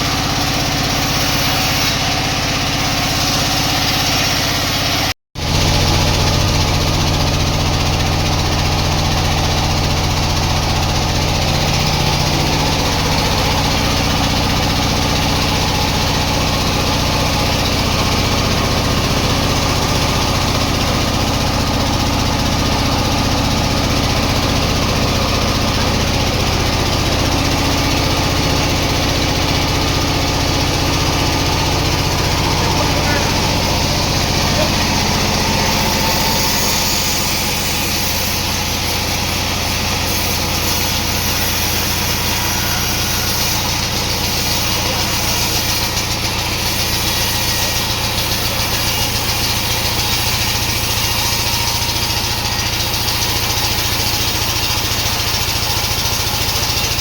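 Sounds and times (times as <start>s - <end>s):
sawmill machinery hum: 0.0s - 57.0s.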